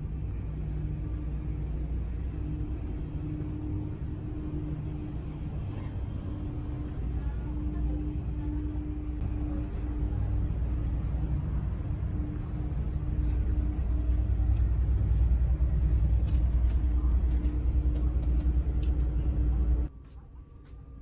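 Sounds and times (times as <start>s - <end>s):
faint constant hum: 0.0s - 21.0s
ship engine low rumble: 0.0s - 21.0s.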